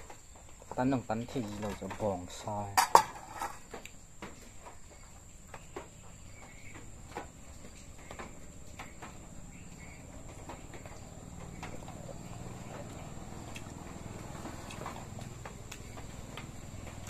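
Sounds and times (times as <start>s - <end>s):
chewing and mouth sounds: 12.8s - 16.0s.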